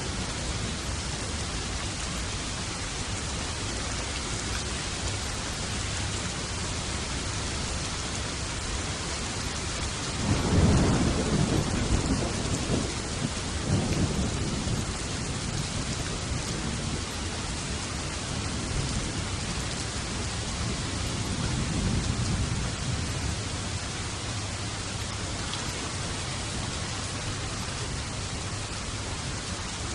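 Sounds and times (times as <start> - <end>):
steady rain: 0.0 - 29.9
thunder rumbling: 10.2 - 17.2, 20.3 - 23.9.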